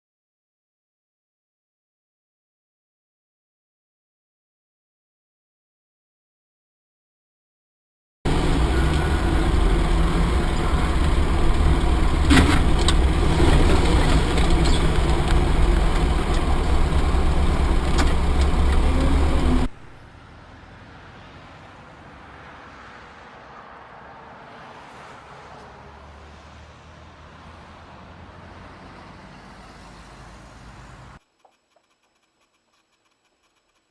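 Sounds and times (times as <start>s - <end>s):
engine and road rumble: 8.3s - 33.8s.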